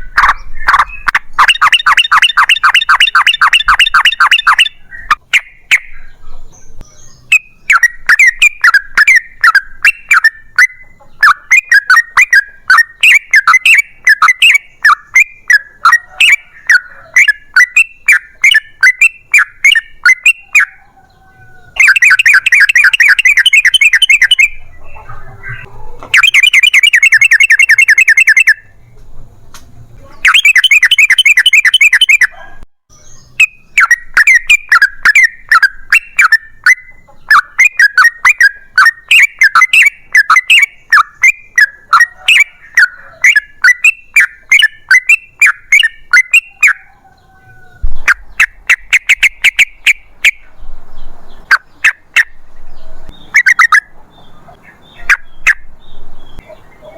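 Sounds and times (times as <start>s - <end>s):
bird chattering calls: 0.0s - 28.8s, 30.0s - 50.6s, 51.2s - 56.9s.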